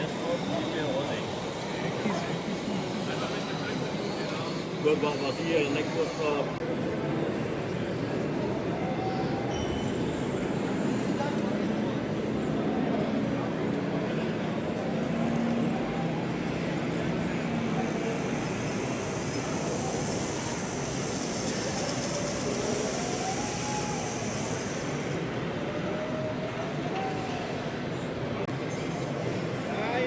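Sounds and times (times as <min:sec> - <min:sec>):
din of busy hall: 0:00.0 - 0:30.0
model motors whining: 0:14.9 - 0:26.6.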